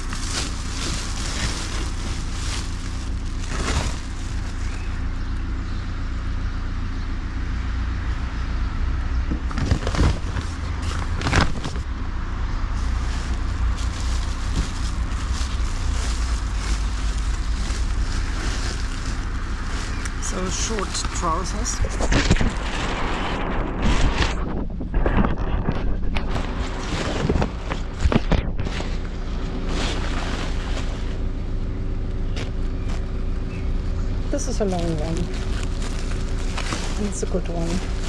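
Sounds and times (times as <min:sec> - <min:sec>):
fabric rustling: 0:00.0 - 0:05.0, 0:12.8 - 0:24.4, 0:29.6 - 0:31.3, 0:34.4 - 0:38.0
steady low rumble: 0:00.0 - 0:38.0.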